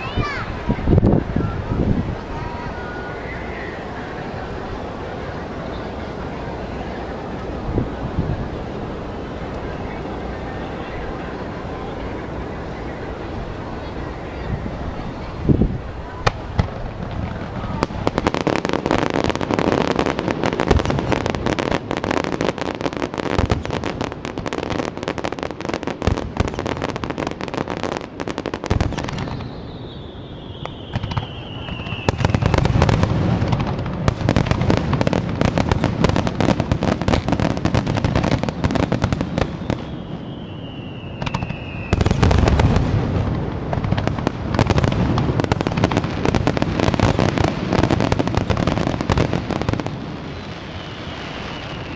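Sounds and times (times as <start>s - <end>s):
fireworks crackling and popping: 0.0s - 51.9s
falling whistle: 2.3s - 4.2s, 29.1s - 32.6s, 39.6s - 42.4s, 50.4s - 51.9s.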